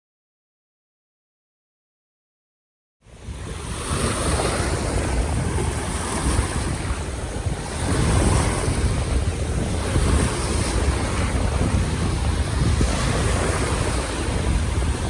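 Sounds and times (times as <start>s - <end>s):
sea surf rushing: 3.0s - 15.0s
wind buffeting microphone: 3.1s - 15.0s.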